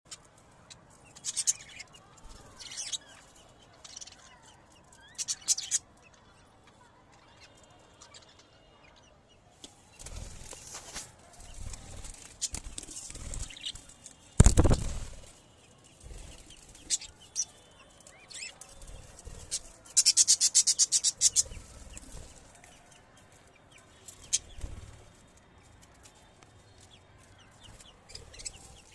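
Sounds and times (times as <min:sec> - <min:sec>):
budgerigar wings flapping: 0:14.4 - 0:15.4.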